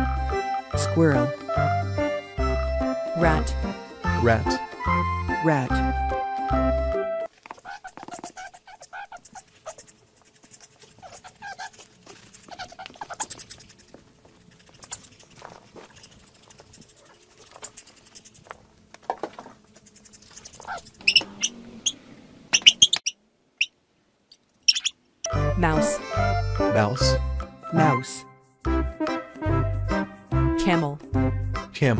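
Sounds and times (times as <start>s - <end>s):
rats squeaking: 7.5s - 18.6s, 19.7s - 23.8s, 24.6s - 25.0s.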